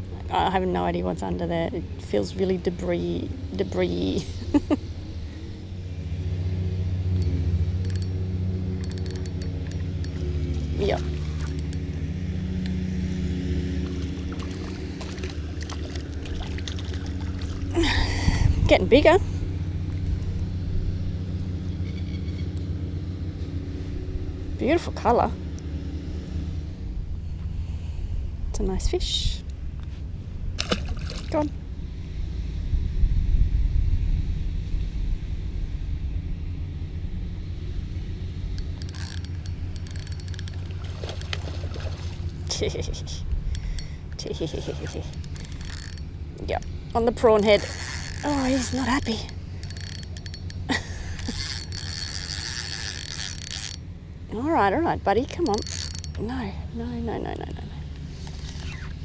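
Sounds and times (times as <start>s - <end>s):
low engine drone: 0.0s - 59.0s
wind buffeting microphone: 13.7s - 21.3s, 28.2s - 37.2s
clicks and rattles of tackle: 38.6s - 42.6s, 55.3s - 56.2s.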